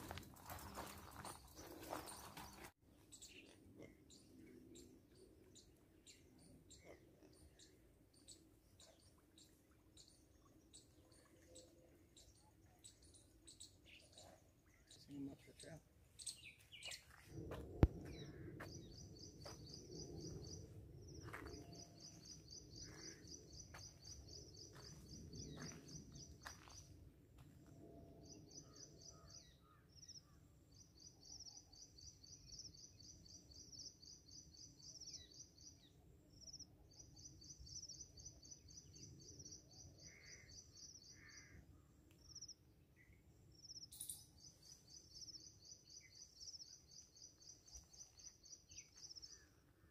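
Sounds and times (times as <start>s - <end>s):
bird chirping trill: 43.7s - 49.4s.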